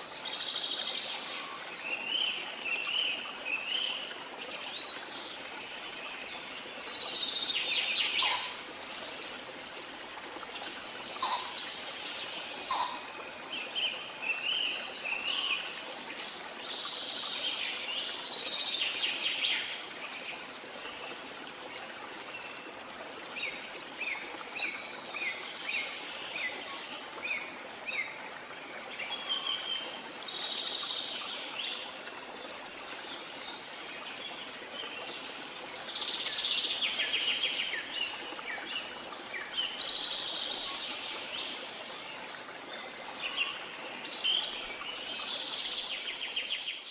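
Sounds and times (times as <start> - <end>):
birds calling and singing: 5.7 - 8.7, 10.6 - 15.7.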